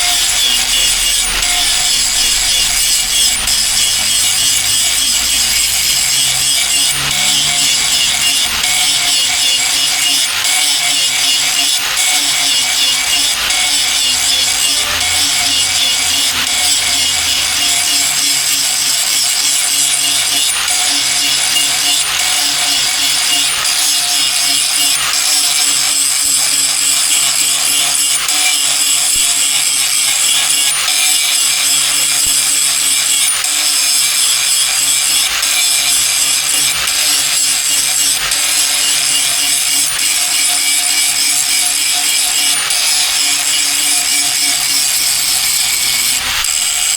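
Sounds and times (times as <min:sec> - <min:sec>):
tool rasping on axe: 0:00.0 - 0:46.9.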